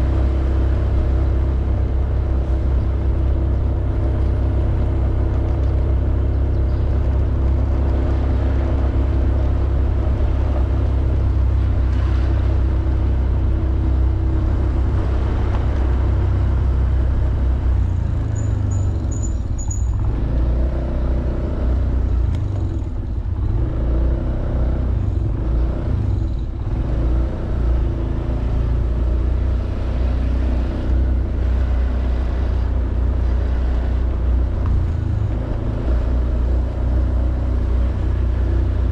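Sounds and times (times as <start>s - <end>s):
heavy low rumble: 0.0s - 23.8s.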